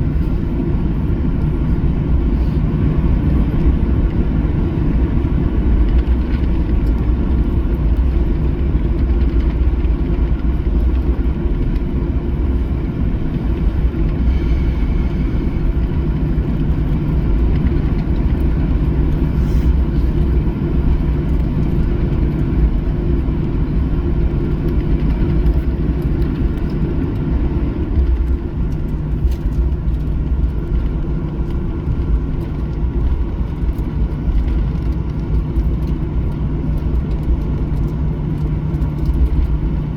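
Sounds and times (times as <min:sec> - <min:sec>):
aircraft cabin engine rumble: 0:00.0 - 0:39.9
faint steady hum: 0:00.0 - 0:39.9.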